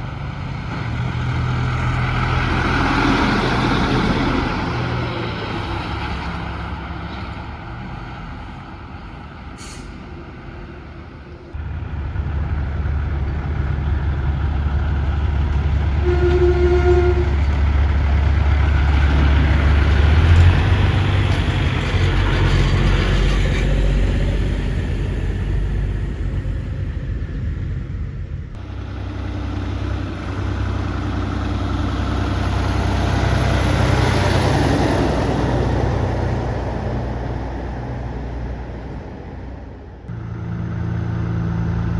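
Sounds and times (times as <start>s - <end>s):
diesel truck engines passing: 0.0s - 41.9s
short pitched tone: 16.0s - 17.4s.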